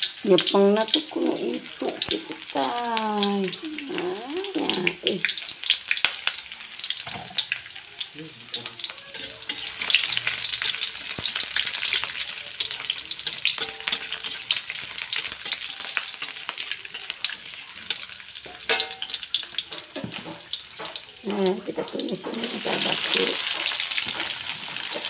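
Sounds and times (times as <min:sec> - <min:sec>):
garlic sizzling in hot oil: 0:00.0 - 0:25.0
metal spatula stirring: 0:08.6 - 0:25.0.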